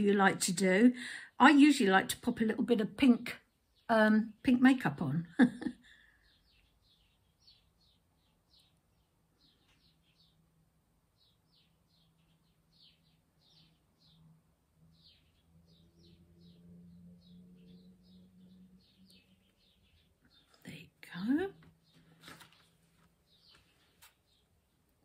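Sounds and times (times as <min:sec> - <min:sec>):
bird chirping: 0:05.6 - 0:25.0.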